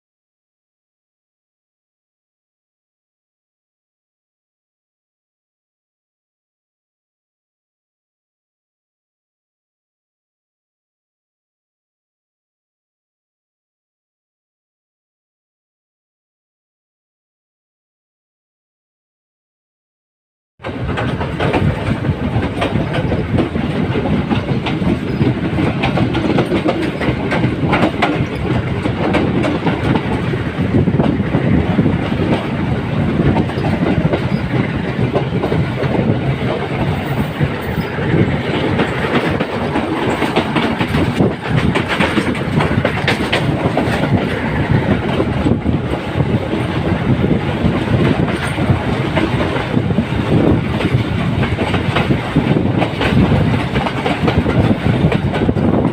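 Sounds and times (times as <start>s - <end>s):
train wheels clattering on rails: 20.6s - 55.9s.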